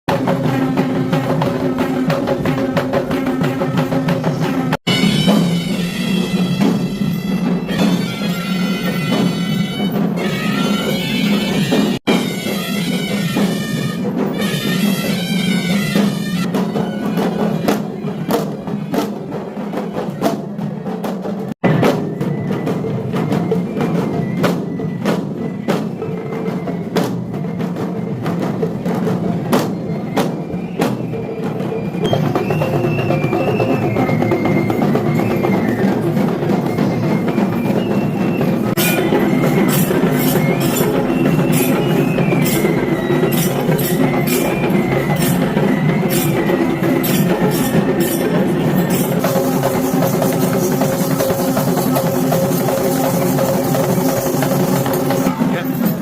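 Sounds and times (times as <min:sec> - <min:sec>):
drums beating: 0:00.0 - 0:56.0
reed pipe melody: 0:04.9 - 0:17.7, 0:35.8 - 0:54.8.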